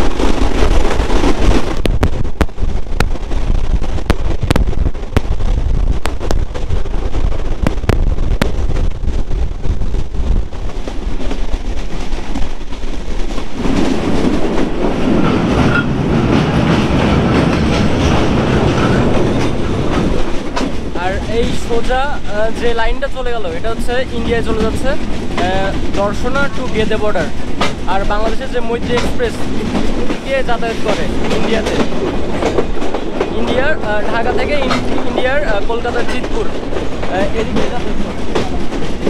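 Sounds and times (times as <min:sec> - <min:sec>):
train rumbling: 0:00.0 - 0:39.0
wheels clicking over rail joints: 0:10.6 - 0:39.0.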